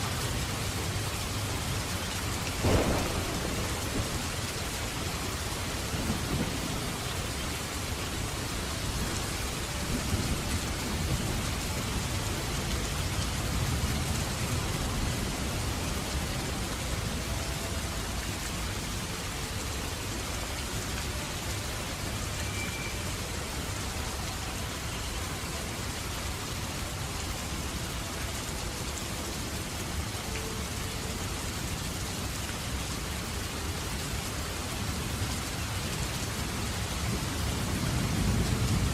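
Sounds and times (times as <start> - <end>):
steady rain falling: 0.0 - 38.9
thunder rumbling: 2.4 - 12.0.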